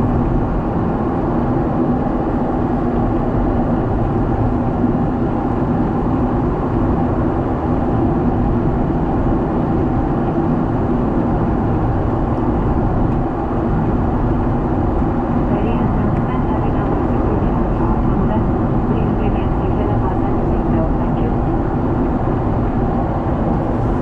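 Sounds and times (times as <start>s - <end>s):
airliner cabin engine roar: 0.0s - 24.0s.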